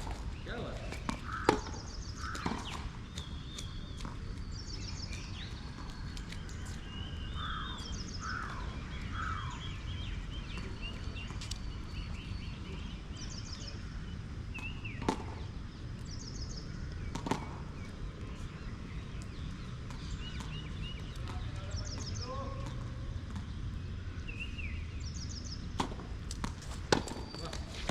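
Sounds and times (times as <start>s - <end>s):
birds chirping: 0.0s - 27.9s
racket hitting tennis ball: 0.9s - 2.8s, 25.8s - 27.9s.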